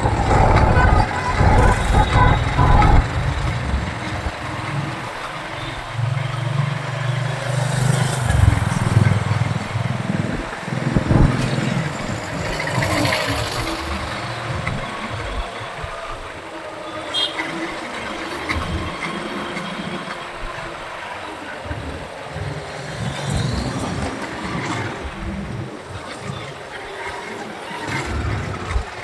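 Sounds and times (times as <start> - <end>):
steady low engine note: 0.0 - 7.0
road traffic: 0.0 - 29.0.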